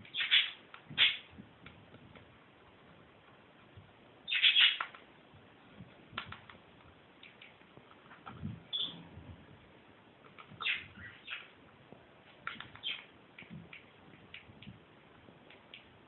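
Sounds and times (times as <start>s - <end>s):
budgerigar chirping: 0.1s - 1.2s, 4.3s - 4.9s, 8.7s - 9.0s, 10.6s - 11.5s.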